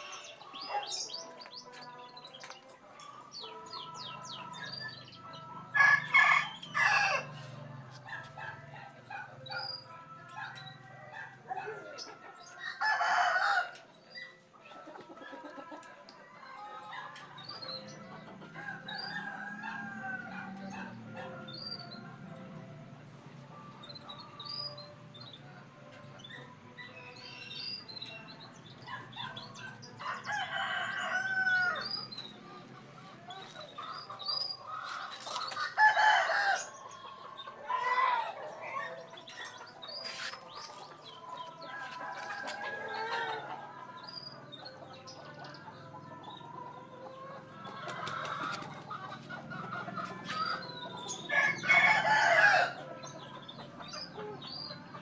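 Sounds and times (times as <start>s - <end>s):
rooster crowing: 5.8s - 7.3s, 30.0s - 32.0s, 51.3s - 52.8s
hens clucking: 10.5s - 22.6s, 28.8s - 55.0s.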